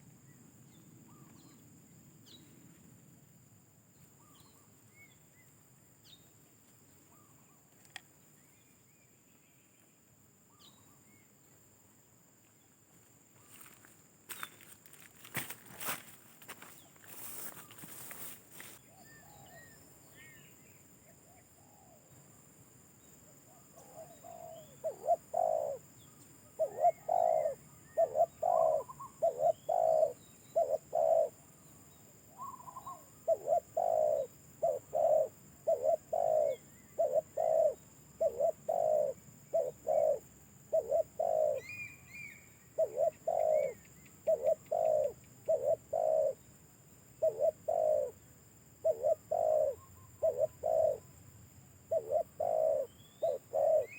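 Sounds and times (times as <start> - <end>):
faint small bird chirps: 0.0 - 2.6, 3.9 - 11.4, 12.4 - 14.7, 23.0 - 46.4, 51.9 - 53.9
dove cooing: 23.5 - 25.9, 26.5 - 31.5, 32.3 - 46.5, 47.2 - 48.2, 48.8 - 51.2, 51.8 - 53.9.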